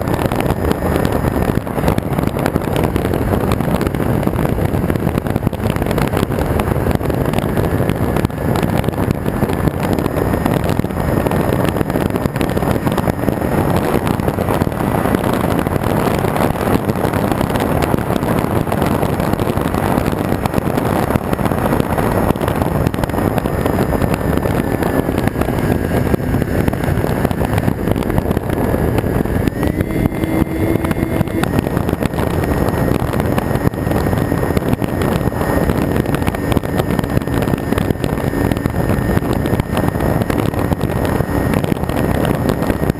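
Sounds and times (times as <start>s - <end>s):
air rushing on microphone: 0.0s - 42.9s
electric motor whine: 23.3s - 42.9s.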